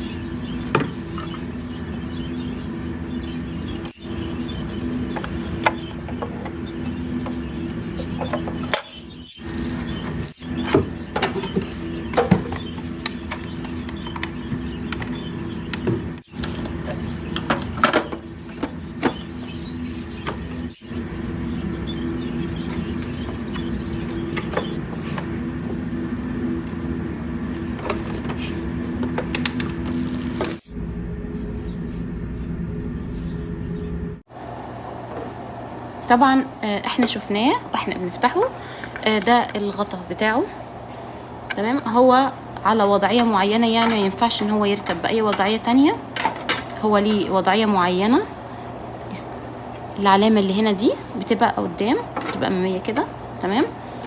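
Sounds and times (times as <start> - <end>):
steady low hum: 0.0 - 54.0
packaging rustling: 9.4 - 10.4, 24.6 - 30.6.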